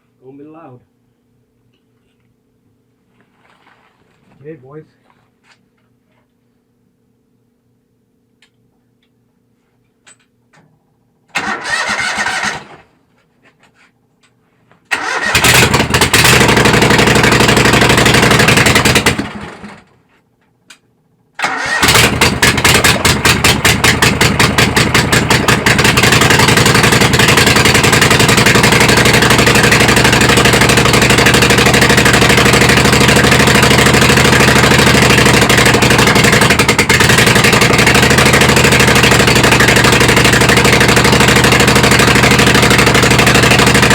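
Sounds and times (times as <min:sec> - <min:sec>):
twin-cylinder engine starting and running: 0:11.3 - 0:13.0, 0:14.9 - 0:20.0, 0:21.3 - 0:43.9.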